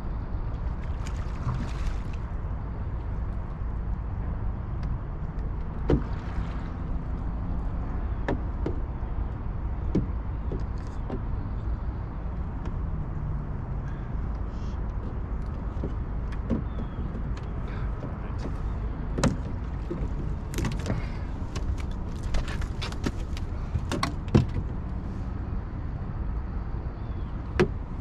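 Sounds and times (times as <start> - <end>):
low rumble of river current: 0.0 - 28.0
sharp knocks on boat: 0.9 - 2.2, 5.8 - 6.8, 8.1 - 9.0, 9.8 - 11.5, 15.0 - 24.8, 27.5 - 27.8.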